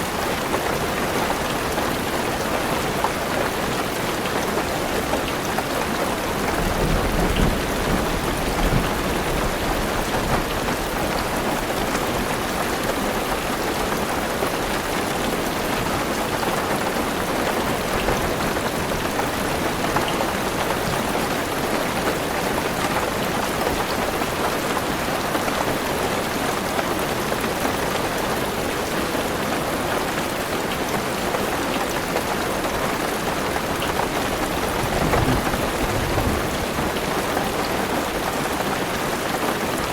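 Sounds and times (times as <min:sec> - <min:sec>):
heavy rain on car roof: 0:00.0 - 0:39.9
thunder rumble: 0:34.8 - 0:36.9.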